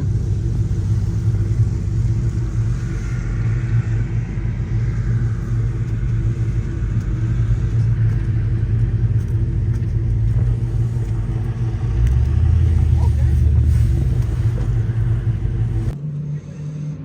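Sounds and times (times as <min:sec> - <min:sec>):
vehicle engine running steadily: 0:00.0 - 0:17.0.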